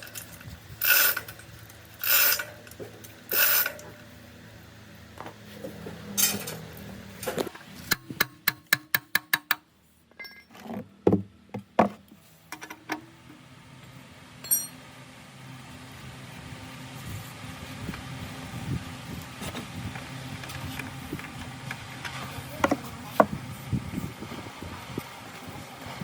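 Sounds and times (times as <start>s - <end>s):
ringing clink: 10.2s - 10.5s, 14.4s - 14.8s
metal tools clicking: 14.4s - 14.8s.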